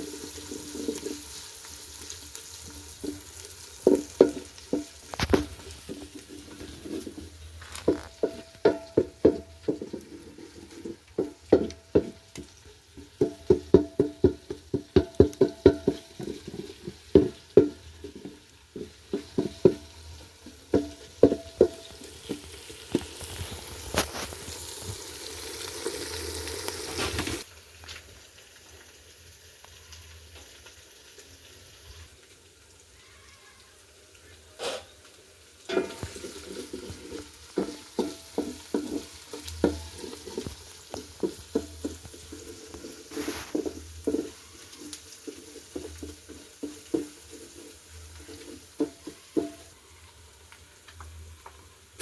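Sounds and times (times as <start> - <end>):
food sizzling: 0.0 - 52.0
metal spoon knocking a pot: 3.8 - 6.0, 7.8 - 22.4, 35.7 - 42.6.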